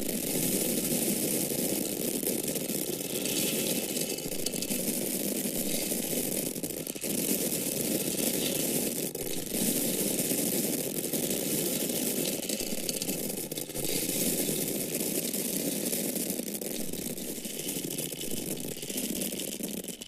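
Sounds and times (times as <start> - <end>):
grain kernels falling: 0.0 - 20.0.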